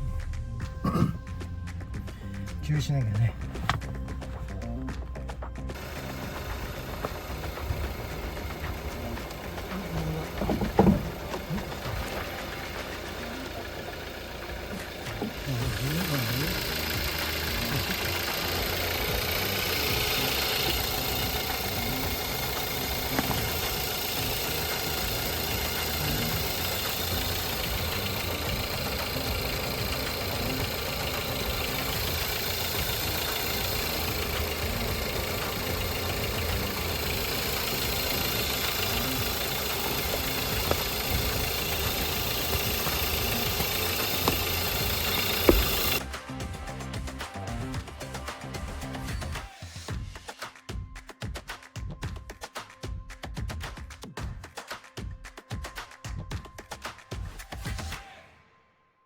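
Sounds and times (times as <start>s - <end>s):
car engine running: 0.0s - 49.5s.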